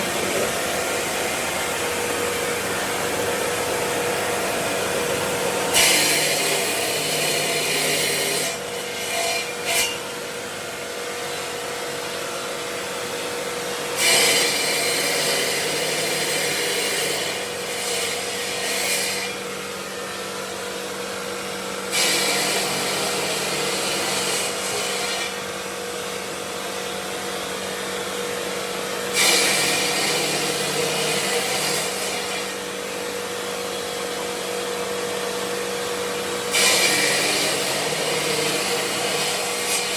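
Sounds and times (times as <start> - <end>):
machine hum: 0.0 - 5.8
power tool rasping on marble: 0.0 - 10.1, 13.8 - 20.2, 21.8 - 25.7, 29.0 - 39.9.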